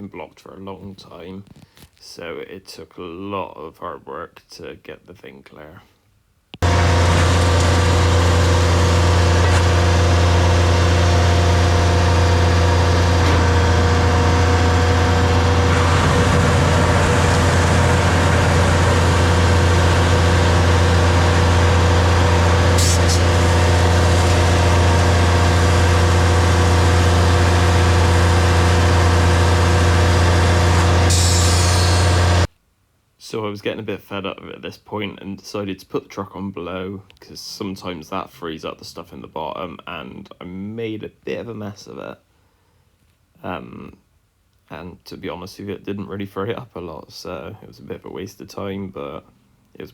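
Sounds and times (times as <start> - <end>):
tanker engine droning: 6.6 - 32.5.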